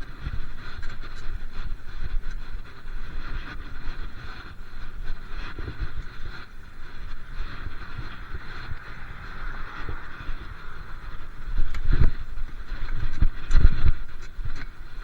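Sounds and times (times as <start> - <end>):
tyre and road noise: 0.0 - 15.0
wind buffeting microphone: 0.0 - 15.0.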